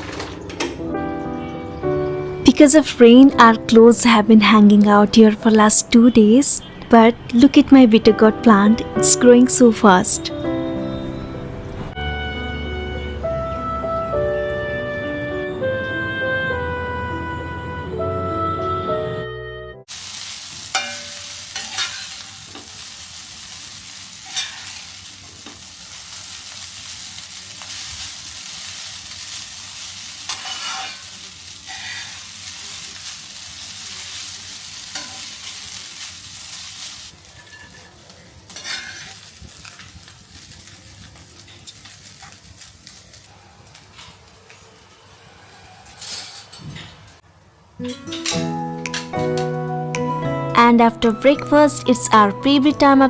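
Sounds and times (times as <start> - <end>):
food sizzling in a pan: 19.9 - 46.7.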